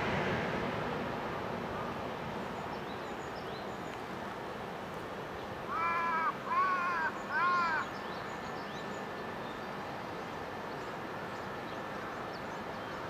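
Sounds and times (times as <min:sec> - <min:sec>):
steady background noise: 0:00.0 - 0:13.0
crow cawing: 0:05.7 - 0:07.9.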